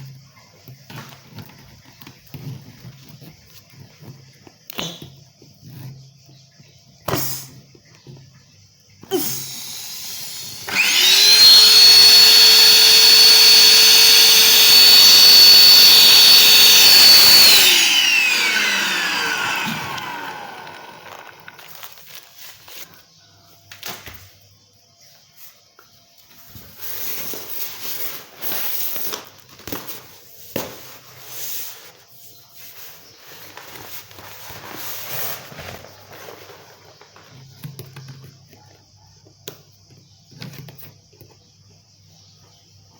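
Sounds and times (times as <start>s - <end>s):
electric air pump whining: 9.1s - 22.1s.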